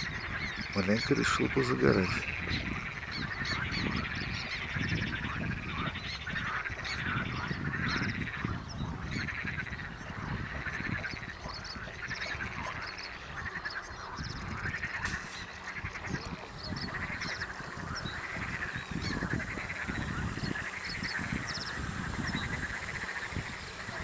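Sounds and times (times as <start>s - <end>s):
animals honking: 16.4s - 24.0s.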